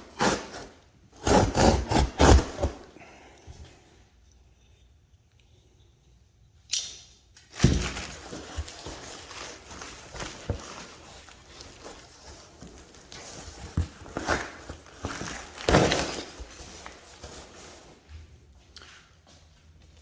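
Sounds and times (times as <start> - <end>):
wrapping rustling: 7.5 - 18.1
punching bag knocks and thumps: 7.6 - 8.2, 15.1 - 16.4.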